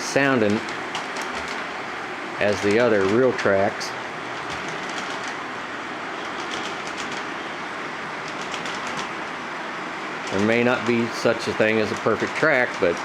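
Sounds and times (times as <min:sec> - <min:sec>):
model train rumbling on track: 0:06.1 - 0:13.0
wheels clickety-clack on rail joints: 0:10.3 - 0:13.0.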